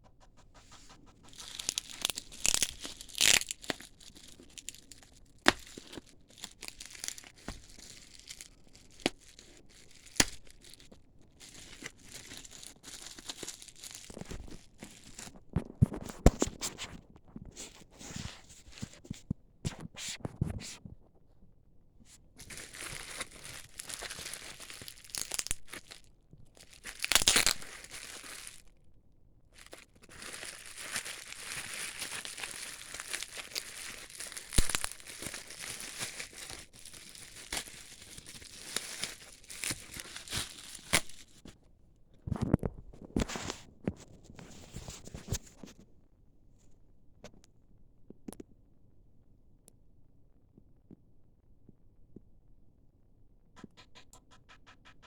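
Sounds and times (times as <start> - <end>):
packaging torn and crinkled: 1.3 - 16.8, 22.4 - 28.8, 29.6 - 41.5.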